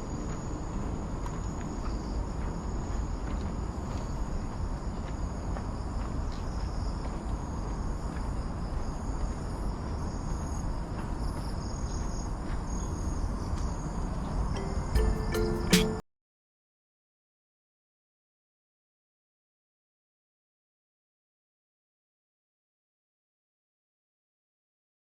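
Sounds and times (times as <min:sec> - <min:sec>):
short high chirps: 0:14.6 - 0:16.0.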